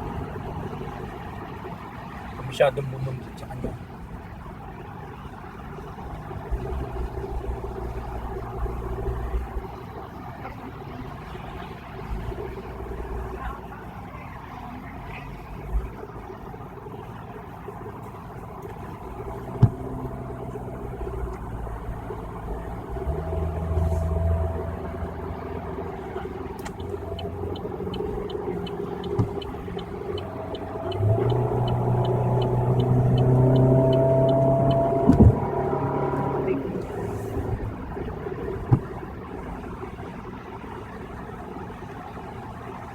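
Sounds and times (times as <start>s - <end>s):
turn signal ticking: 0.0s - 39.8s
road rumble and engine in car: 0.0s - 42.9s
knocks from the car: 19.5s - 19.9s, 29.0s - 29.5s, 35.0s - 35.4s, 38.6s - 39.0s.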